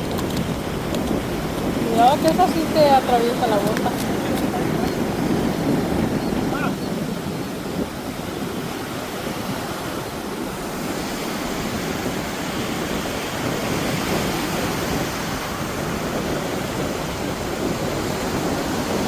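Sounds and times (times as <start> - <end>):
surf washing on beach: 0.0 - 19.0
wind rumbling on microphone: 0.0 - 19.0.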